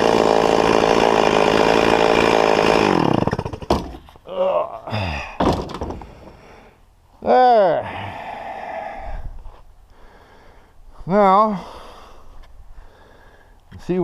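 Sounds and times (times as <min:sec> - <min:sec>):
chainsaw running: 0:00.0 - 0:04.0
sharp knocks: 0:03.5 - 0:04.1, 0:05.4 - 0:06.1.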